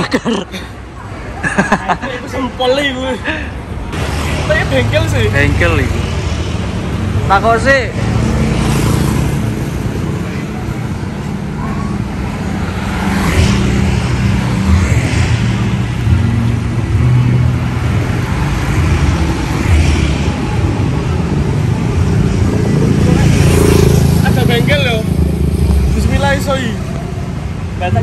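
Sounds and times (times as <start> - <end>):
motorbikes passing: 0.0 - 28.0.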